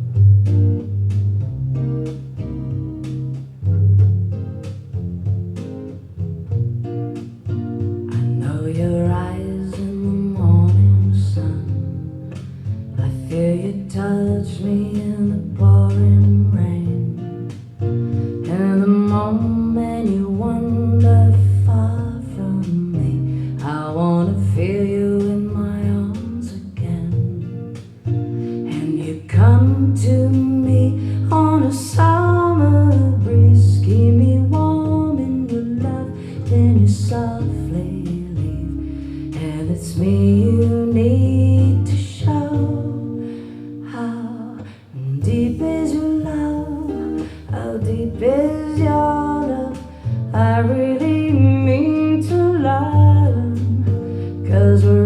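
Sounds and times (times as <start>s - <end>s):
acoustic guitar and double bass: 0.0s - 55.0s
person singing: 28.6s - 43.2s.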